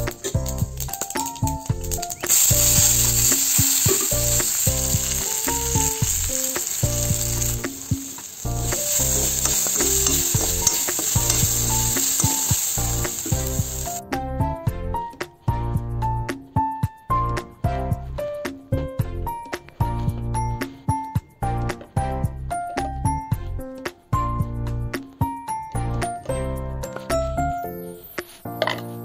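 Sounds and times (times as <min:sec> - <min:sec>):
vegetables sizzling in hot oil: 0:00.0 - 0:14.0
light background music: 0:00.0 - 0:29.0.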